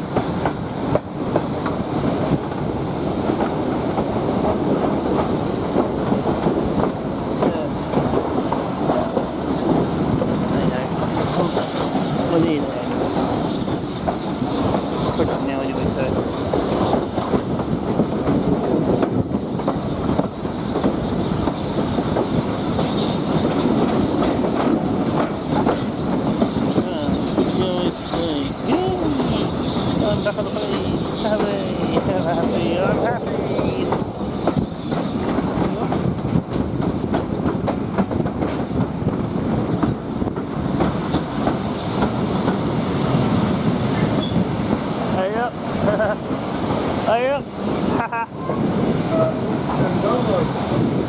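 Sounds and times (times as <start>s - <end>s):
wheels clicking over rail joints: 0.0s - 48.0s
train carriage rumble: 0.0s - 51.0s.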